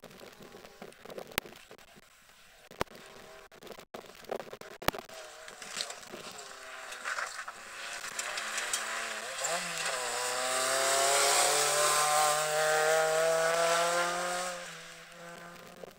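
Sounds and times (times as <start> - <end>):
rally car engine driving past: 5.2 - 15.8.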